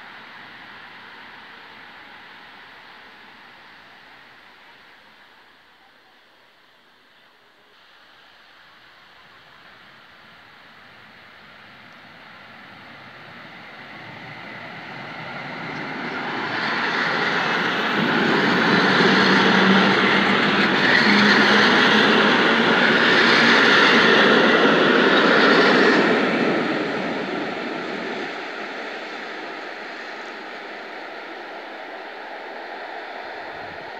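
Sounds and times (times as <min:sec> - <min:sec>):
train passing: 0:00.0 - 0:05.6, 0:07.8 - 0:33.9.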